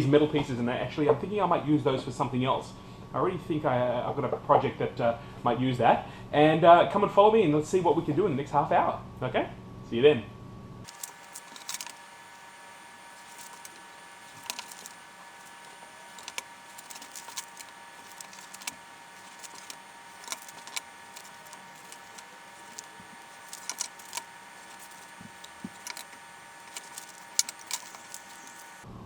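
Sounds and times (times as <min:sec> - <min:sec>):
light clicks and taps: 0:10.9 - 0:28.8.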